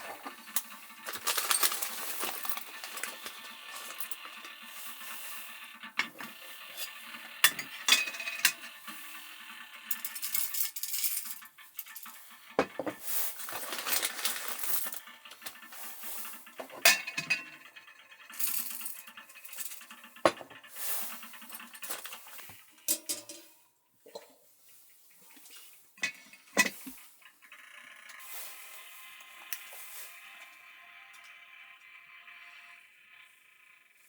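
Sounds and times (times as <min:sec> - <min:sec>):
utensils and dishes clinking: 0:00.0 - 0:05.1, 0:06.0 - 0:08.8, 0:09.9 - 0:17.7, 0:18.3 - 0:24.4, 0:25.4 - 0:27.0.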